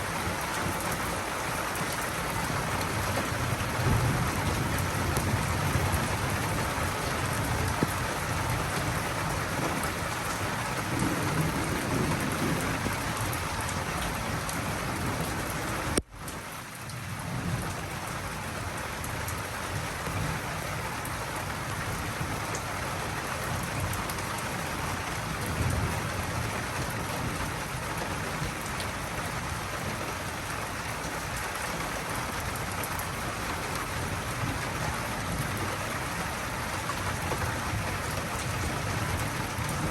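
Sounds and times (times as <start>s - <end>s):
heavy rain falling: 0.0s - 39.9s
low thunder rumbling: 3.0s - 16.0s, 36.9s - 39.9s.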